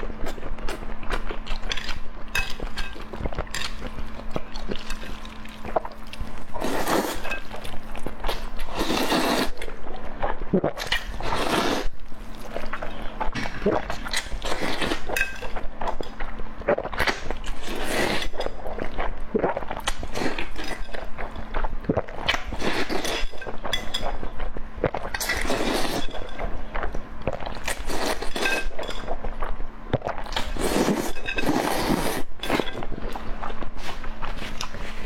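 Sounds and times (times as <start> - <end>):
chewing and crunching: 0.0 - 35.0
slurping: 4.5 - 7.7, 8.3 - 12.9.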